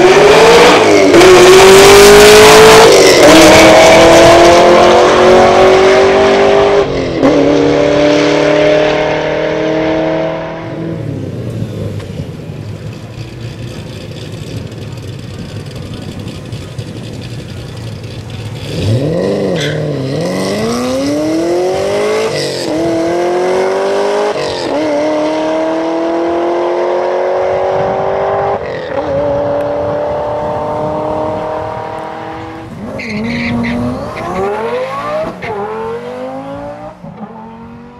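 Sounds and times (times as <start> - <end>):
car passing loudly: 0.0 - 11.4
car engine launching and upshifting: 0.0 - 12.9, 15.8 - 37.9.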